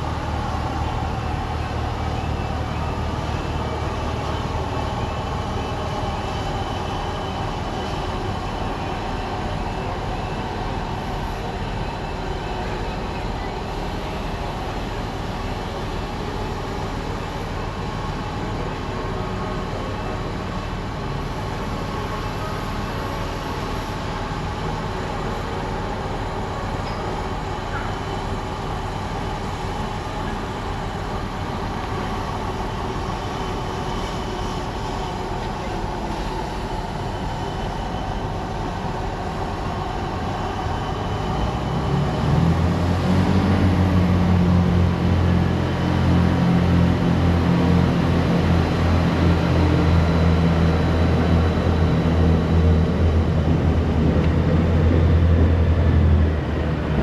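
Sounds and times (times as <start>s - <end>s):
deeper engine note: 41.2s - 57.0s.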